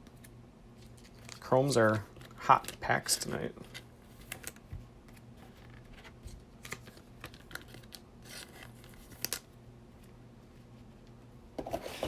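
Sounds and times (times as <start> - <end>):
cards clicking and rustling: 0.0 - 9.5.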